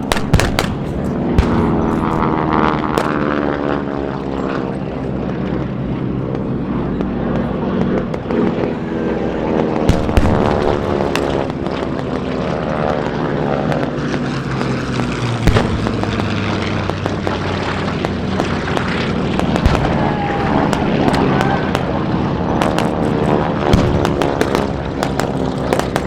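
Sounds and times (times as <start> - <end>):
pyrotechnic bangs and pops: 0.0 - 3.7, 9.7 - 26.0
propeller planes flying past: 0.0 - 26.0.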